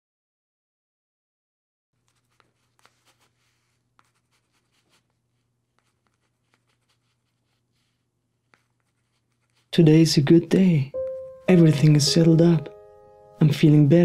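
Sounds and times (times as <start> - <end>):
pen scratching on paper: 2.0 - 9.8.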